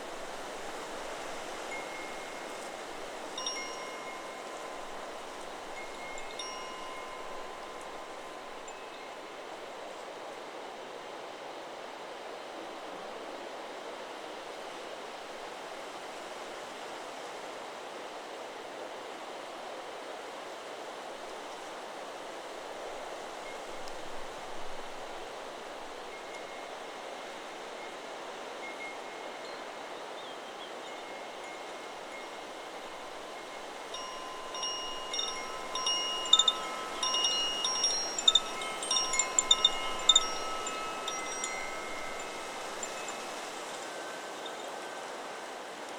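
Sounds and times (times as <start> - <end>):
wind rustling through trees: 0.0 - 45.9
wind chime ringing: 1.0 - 9.3, 30.9 - 45.5.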